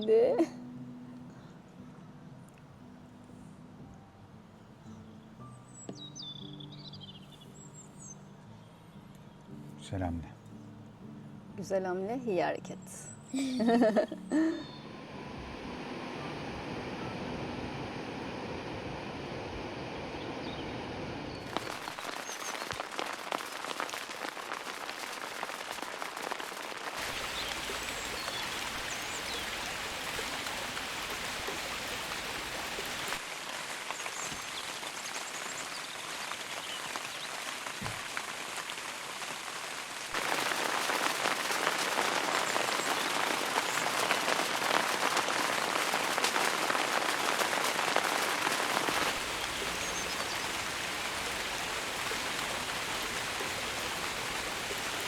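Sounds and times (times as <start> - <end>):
rain falling on surfaces: 13.6 - 55.0.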